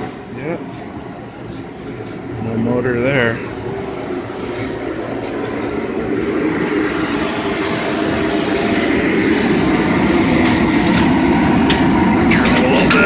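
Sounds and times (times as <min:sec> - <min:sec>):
mechanical rumble: 0:00.0 - 0:13.0.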